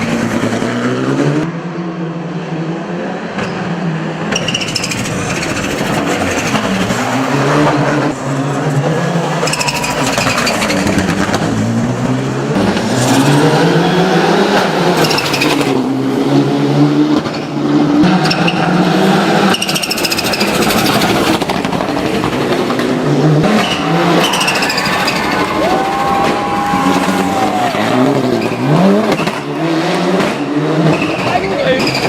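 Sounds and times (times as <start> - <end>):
turbocharged car engine revving: 0.0 - 32.0.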